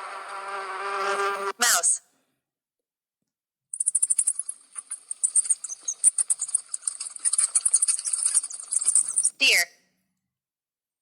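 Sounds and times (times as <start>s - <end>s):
cricket chirping: 3.7s - 9.4s.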